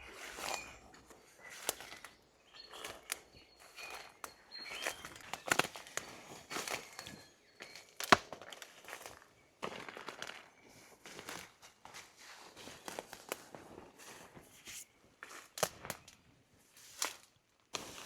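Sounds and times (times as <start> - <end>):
footsteps crunching on forest floor: 0.0 - 16.1
twigs snapping: 1.5 - 2.1, 8.0 - 9.2, 15.5 - 16.2.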